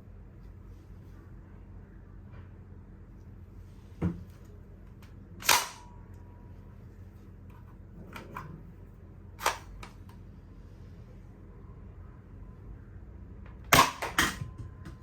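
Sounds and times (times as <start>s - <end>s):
toy blaster firing cracks: 5.4s - 5.8s, 13.8s - 14.4s.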